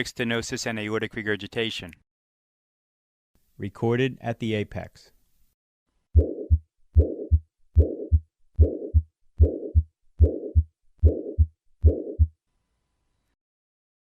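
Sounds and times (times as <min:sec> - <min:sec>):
heart murmur: 0:06.2 - 0:12.3
heartbeat: 0:06.2 - 0:12.4.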